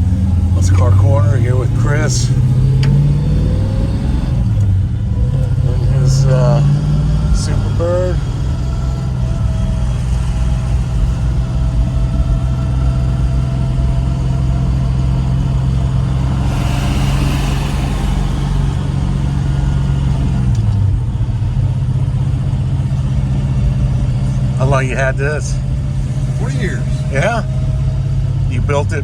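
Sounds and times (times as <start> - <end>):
car engine cruising: 0.0 - 29.0
hiss: 16.1 - 19.6.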